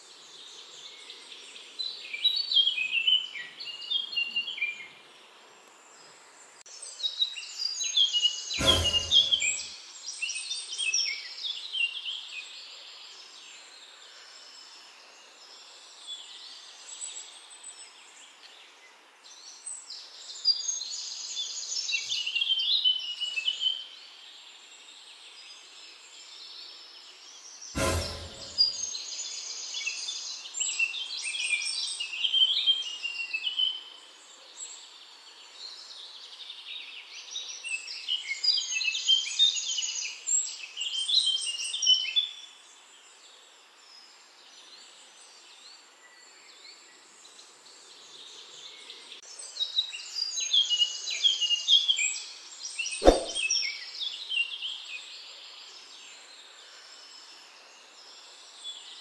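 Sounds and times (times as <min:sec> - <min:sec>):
sharp knock: 0:08.6 - 0:09.6, 0:27.8 - 0:28.8, 0:53.0 - 0:53.4.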